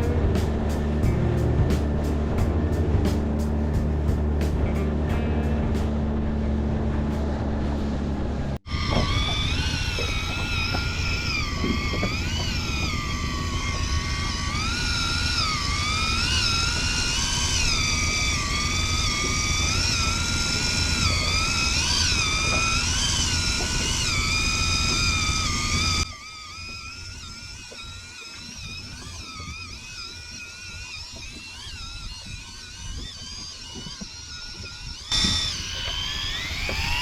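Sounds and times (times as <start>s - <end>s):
wind and water rumble: 0.0s - 37.0s
fishing reel motor whining: 8.6s - 37.0s.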